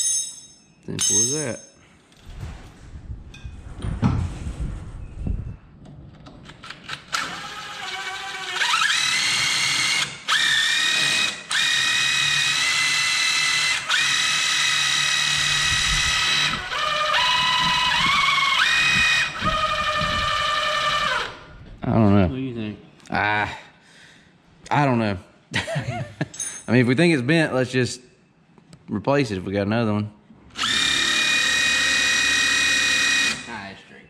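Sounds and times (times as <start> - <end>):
power drill whining: 6.9 - 21.5, 30.5 - 33.5.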